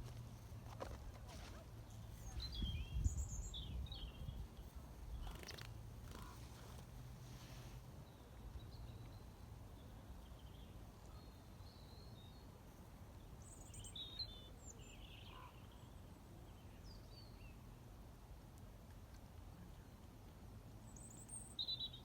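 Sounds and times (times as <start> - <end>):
small birds chirping: 0.8 - 6.9, 20.9 - 22.0.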